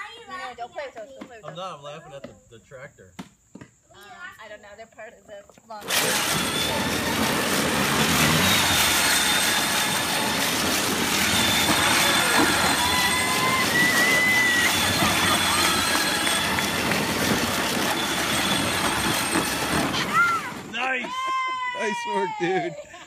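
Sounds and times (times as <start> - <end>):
toy tractor wheels rumbling: 5.7 - 22.2
short squeals: 5.8 - 21.0
faint high whine: 6.0 - 21.0.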